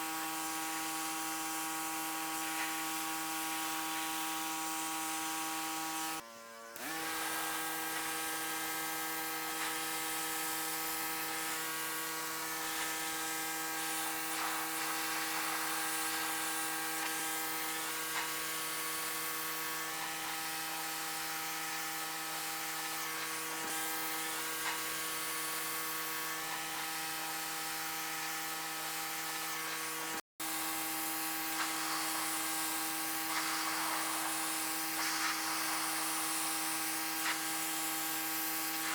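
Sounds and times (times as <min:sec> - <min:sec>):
pressure washer motor humming: 0:06.8 - 0:38.9
water jet hissing: 0:14.0 - 0:19.1, 0:31.3 - 0:38.9.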